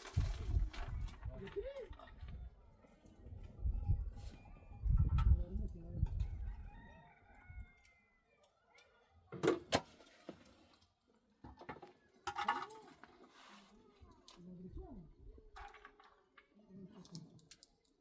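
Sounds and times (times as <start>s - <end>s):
rooster crowing: 6.4s - 8.4s.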